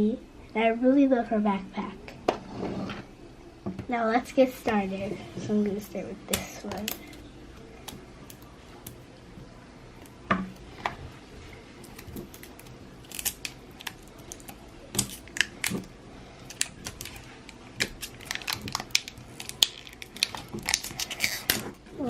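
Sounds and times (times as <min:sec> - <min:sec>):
plastic wrap crinkling: 0:11.5 - 0:21.8.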